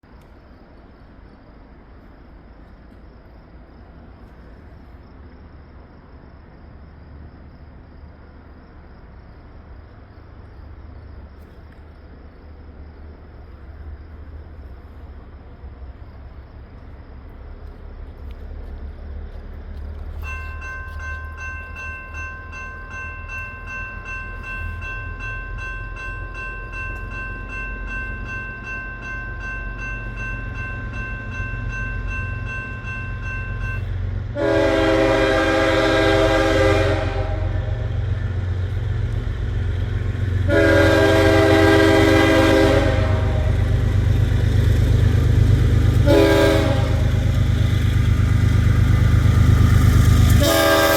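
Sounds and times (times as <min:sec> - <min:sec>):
locomotive engines rumbling: 0:00.1 - 0:50.9
high ringing tone: 0:20.2 - 0:34.1
locomotive horn blasts: 0:34.3 - 0:38.0, 0:40.4 - 0:43.7, 0:46.0 - 0:47.4, 0:50.3 - 0:50.9.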